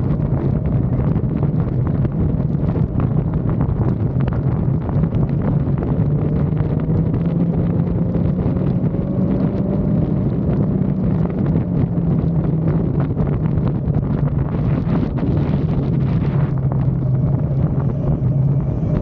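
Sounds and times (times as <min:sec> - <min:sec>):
motorcycle engine cruising: 0:00.0 - 0:19.0
wind noise on microphone: 0:00.0 - 0:19.0
faint rising tone: 0:16.4 - 0:19.0.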